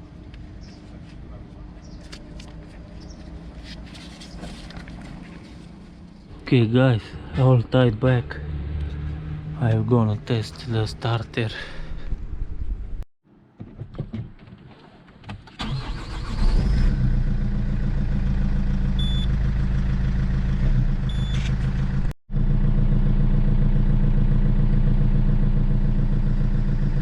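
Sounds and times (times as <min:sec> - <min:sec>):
diesel engine idling: 0:17.1 - 0:27.0.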